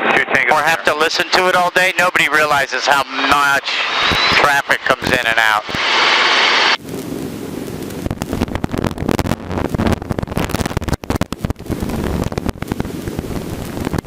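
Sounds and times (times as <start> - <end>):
helicopter rotor and engine rumble: 0.0 - 14.0
wind buffeting on microphone: 5.0 - 14.0.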